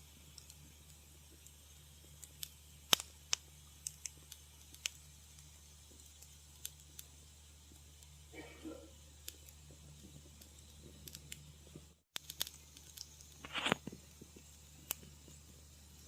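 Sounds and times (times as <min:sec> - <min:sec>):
wood fire crackling: 0:00.0 - 0:16.0
faint low hum: 0:03.5 - 0:12.0.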